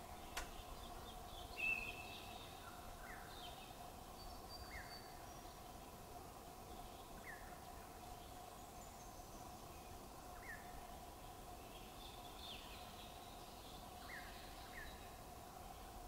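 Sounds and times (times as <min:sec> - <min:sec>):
bird chirping: 0:00.0 - 0:05.6.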